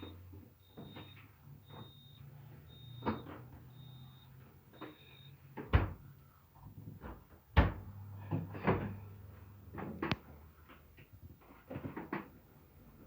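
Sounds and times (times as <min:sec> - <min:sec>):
refrigerator door knocks and clunks: 0:07.6 - 0:07.8.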